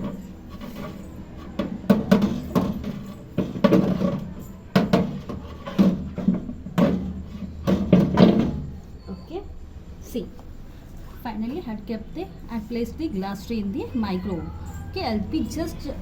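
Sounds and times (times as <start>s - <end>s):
glass tray knocking and clattering: 1.5s - 8.7s.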